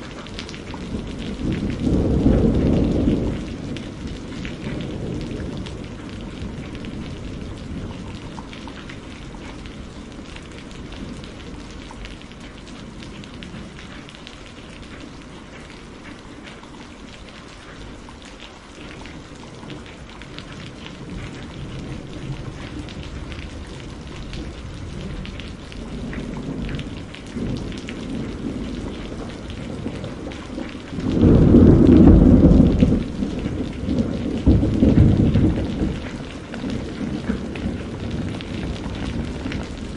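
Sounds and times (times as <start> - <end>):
rolling thunder: 0.0 - 11.8, 19.9 - 39.9
steady rain falling: 0.0 - 39.9
loud thunder clap: 26.1 - 39.9.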